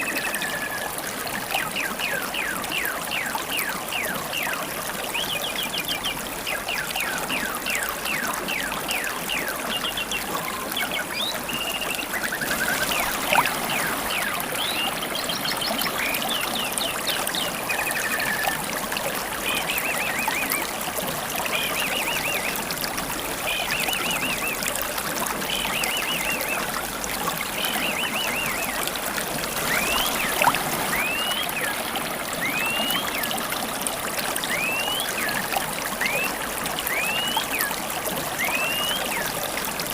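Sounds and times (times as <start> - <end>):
stream babbling: 0.0 - 39.9
bird whistling rising notes: 29.6 - 31.8, 32.4 - 33.4, 34.5 - 35.4
birds chirping and trilling: 29.6 - 31.8.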